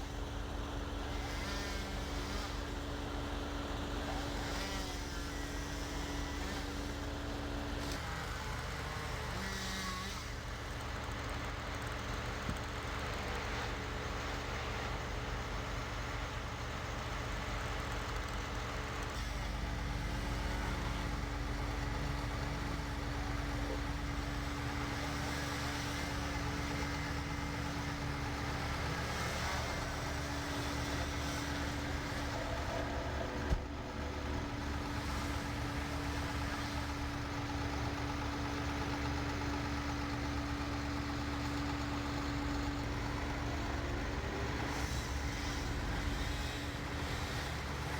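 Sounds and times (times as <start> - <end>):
heavy equipment engine idling: 10.4 - 47.9.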